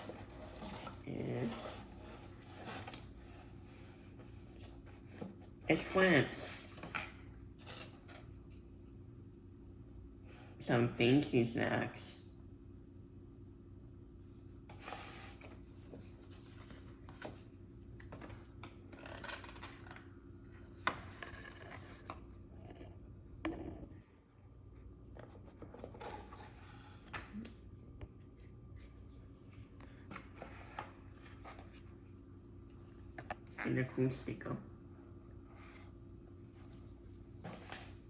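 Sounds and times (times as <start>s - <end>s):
cardboard and paper rustling: 0.0s - 8.4s.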